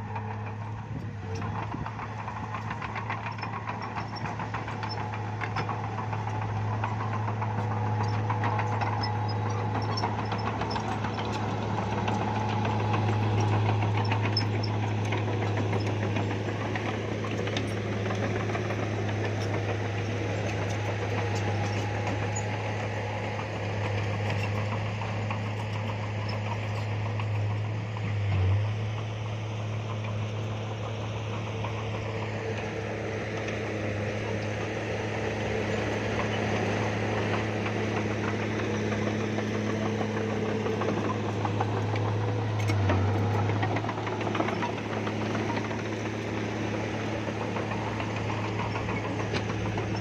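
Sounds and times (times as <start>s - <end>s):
bulldozer diesel engine running: 0.0s - 50.0s
rapid clatter: 29.9s - 50.0s.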